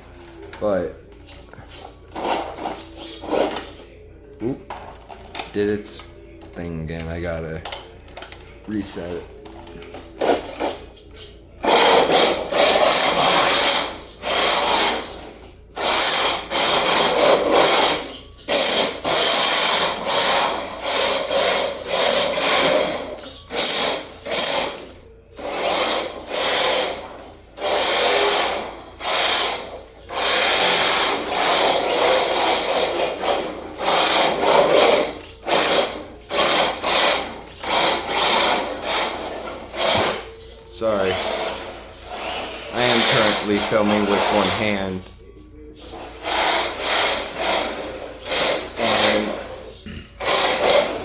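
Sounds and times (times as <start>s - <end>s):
hard tires scraping and sliding: 10.1s - 45.0s, 45.9s - 51.0s
electric motor whirring: 11.6s - 44.9s, 45.8s - 51.0s.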